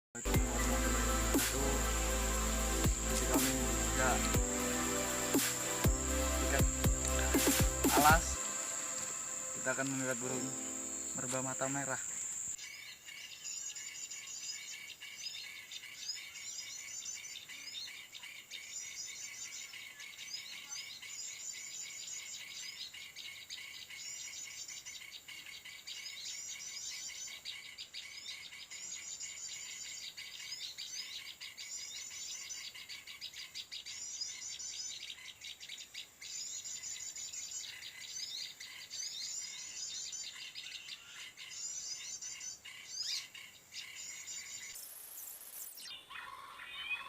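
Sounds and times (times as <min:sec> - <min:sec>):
shrill insect drone: 0:00.2 - 0:12.6
high chattering bird calls: 0:00.2 - 0:47.0.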